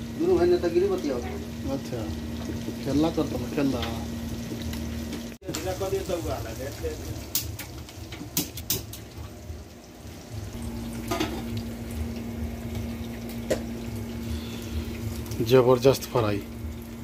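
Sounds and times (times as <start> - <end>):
chicken frying in oil: 0.0 - 17.0
faint steady hum: 9.3 - 17.0.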